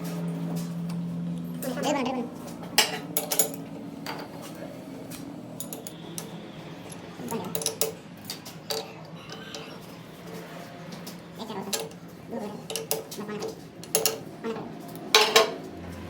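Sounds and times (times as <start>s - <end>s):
metal tools clinking: 2.8s - 4.3s, 5.6s - 9.9s, 12.6s - 15.6s.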